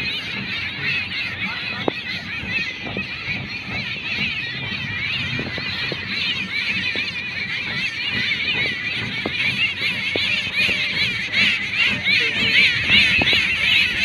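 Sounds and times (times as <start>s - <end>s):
many birds chirping: 0.0s - 14.0s.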